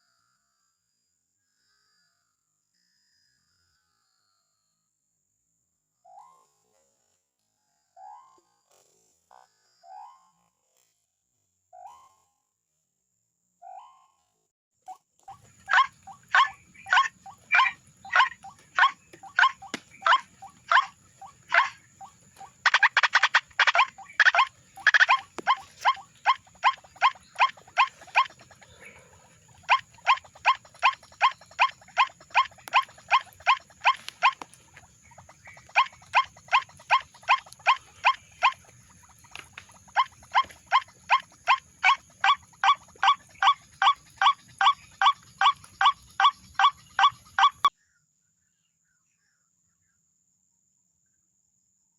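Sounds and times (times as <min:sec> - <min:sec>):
waterhen harsh calls: 0:15.3 - 0:47.7.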